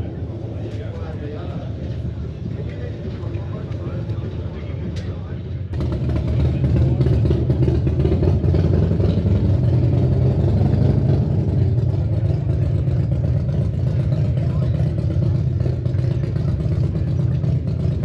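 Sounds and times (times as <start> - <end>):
motorcycle engine running: 5.8 - 18.0.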